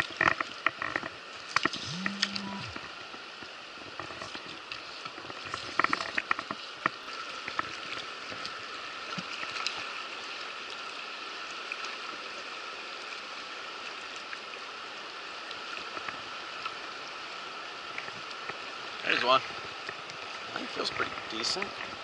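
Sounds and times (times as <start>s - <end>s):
fast river water rushing: 6.7s - 22.0s.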